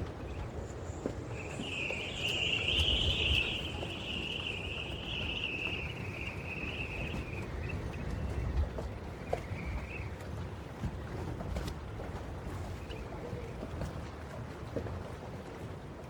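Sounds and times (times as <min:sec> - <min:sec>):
low outdoor rumble: 0:00.0 - 0:10.7.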